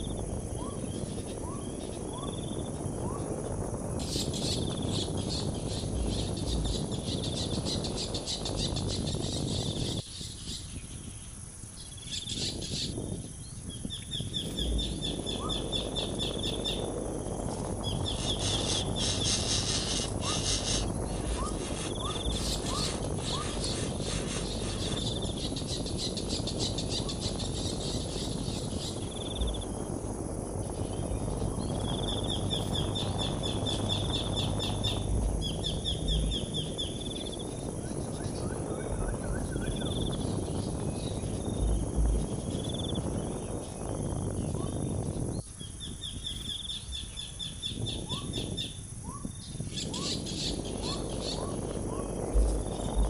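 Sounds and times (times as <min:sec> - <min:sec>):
insects trilling: 0:00.0 - 0:53.0
steady rushing noise: 0:00.0 - 0:53.0.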